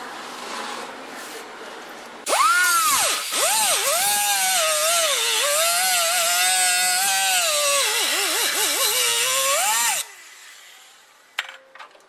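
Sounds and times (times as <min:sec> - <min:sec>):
power tool cutting sheet metal: 0:02.3 - 0:10.8.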